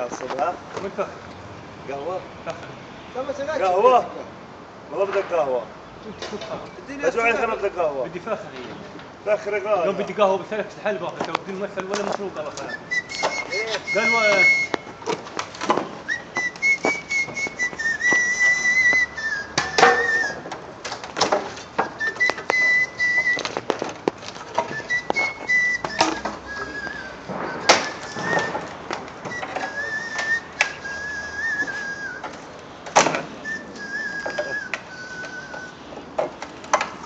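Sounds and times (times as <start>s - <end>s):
man whistling a melody: 12.6s - 14.9s, 16.0s - 20.5s, 21.8s - 23.7s, 24.5s - 32.3s, 33.2s - 35.9s
clicks and knocks: 19.6s - 30.9s, 34.2s - 37.0s.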